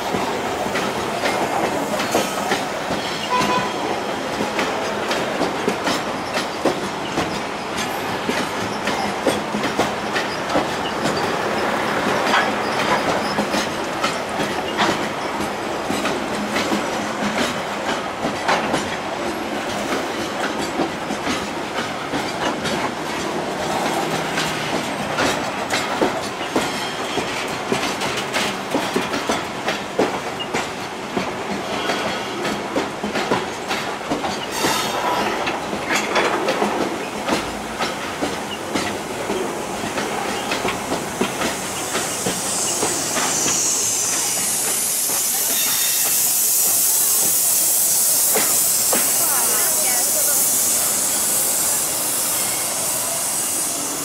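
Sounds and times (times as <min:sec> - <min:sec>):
wheels clacking over rail joints: 0:00.1 - 0:46.2
high hiss: 0:38.4 - 0:54.0.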